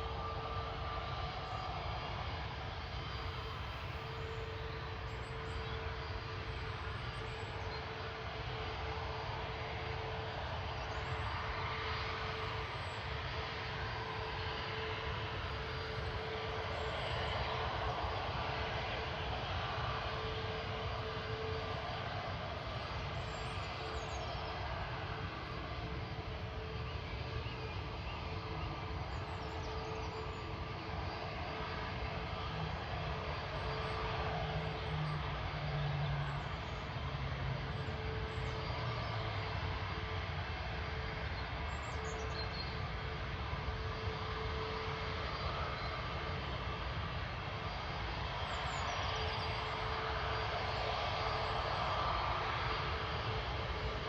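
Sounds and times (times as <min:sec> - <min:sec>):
jet engines rumbling: 0:00.0 - 0:54.0.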